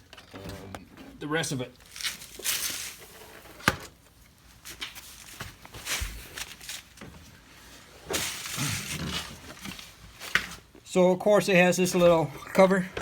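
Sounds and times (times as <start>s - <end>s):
footsteps and scuffing: 4.6s - 7.3s.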